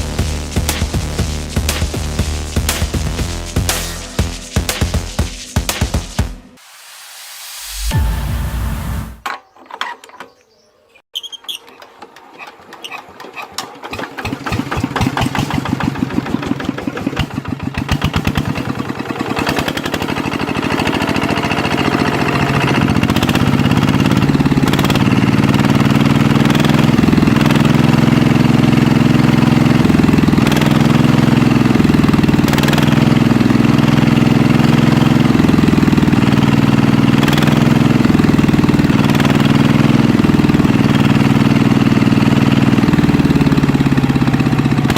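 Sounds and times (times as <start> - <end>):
diesel engine starting: 11.8 - 44.9.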